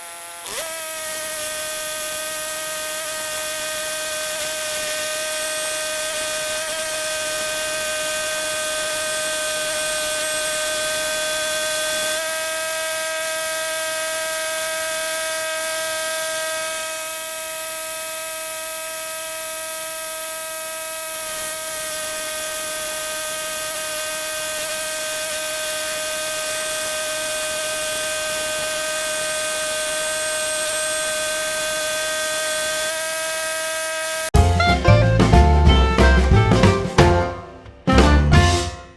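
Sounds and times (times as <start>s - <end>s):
bandsaw sawmill whining: 0.0s - 38.9s
music: 34.4s - 38.9s.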